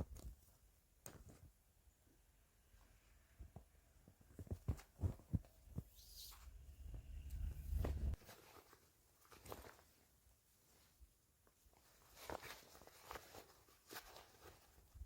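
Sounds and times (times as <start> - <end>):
soft low thumps: 3.4 - 8.2
low rumble: 6.4 - 8.2.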